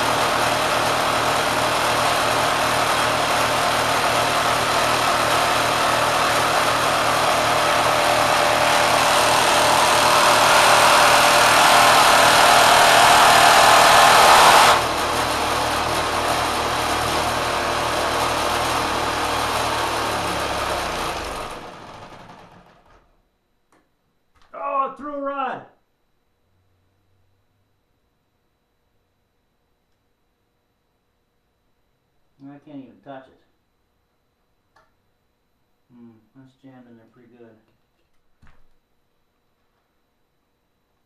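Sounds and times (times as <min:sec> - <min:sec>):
sewing machine motor running: 0:00.0 - 0:23.1.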